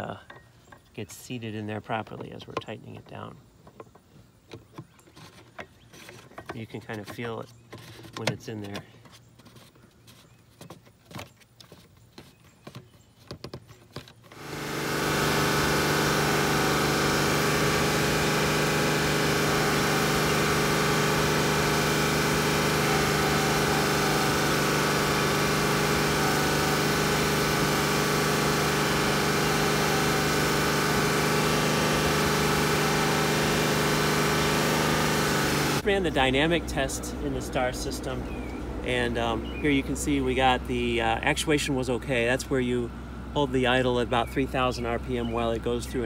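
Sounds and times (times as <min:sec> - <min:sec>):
car engine running steadily: 0:14.3 - 0:46.0.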